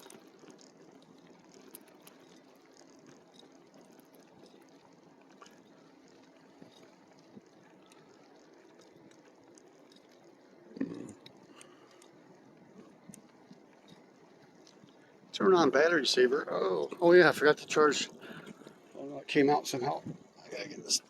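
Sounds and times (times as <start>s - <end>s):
light ticks: 0.0s - 15.2s.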